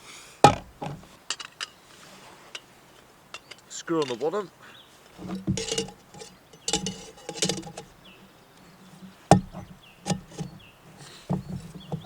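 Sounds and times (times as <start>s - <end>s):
metal clinking and scraping: 5.1s - 12.0s.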